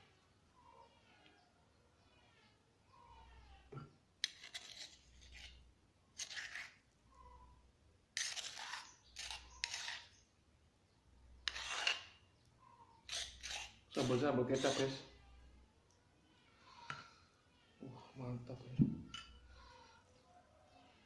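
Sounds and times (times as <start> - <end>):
crunching and scraping eating sounds: 4.2 - 6.9, 8.2 - 10.2.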